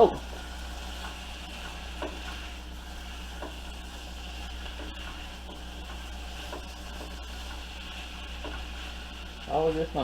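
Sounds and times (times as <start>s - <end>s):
food sizzling in oil: 0.0s - 10.0s
faint taps: 3.4s - 3.6s.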